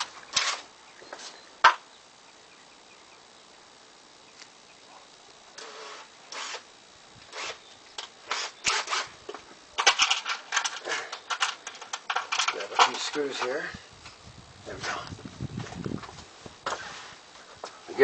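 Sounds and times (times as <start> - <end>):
scrapes and clicks of handling: 9.3 - 14.2.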